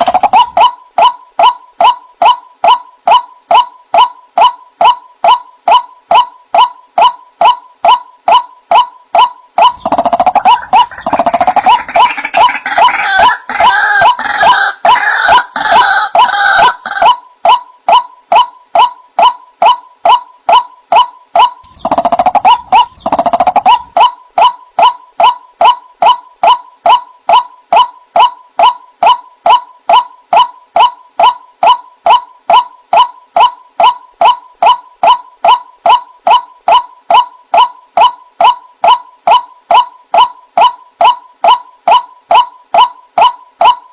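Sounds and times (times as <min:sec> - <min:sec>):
waterhen calling kwak notes: 0:00.0 - 0:43.8
fast bird chattering: 0:08.7 - 0:17.2, 0:19.2 - 0:25.8.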